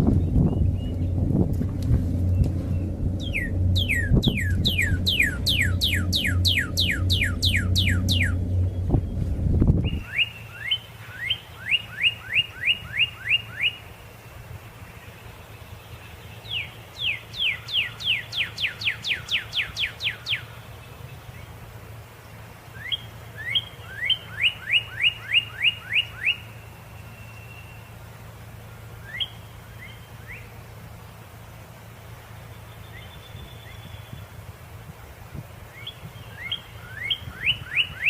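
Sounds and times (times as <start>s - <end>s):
steady low hum: 0.0s - 11.0s
bird singing whistles: 2.4s - 9.0s, 29.0s - 30.4s, 35.7s - 38.0s.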